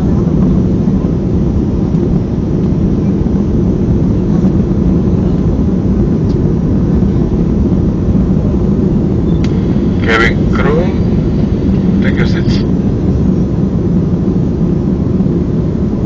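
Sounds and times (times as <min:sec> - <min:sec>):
jet engine cabin rumble: 0:00.0 - 0:16.0.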